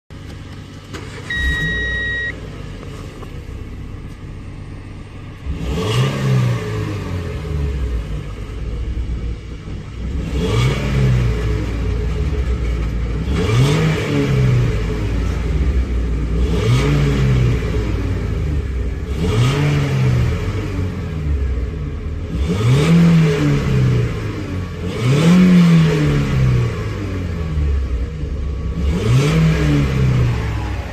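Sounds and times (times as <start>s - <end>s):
car engine revving: 0.1s - 30.9s
short electronic beep: 1.2s - 2.4s.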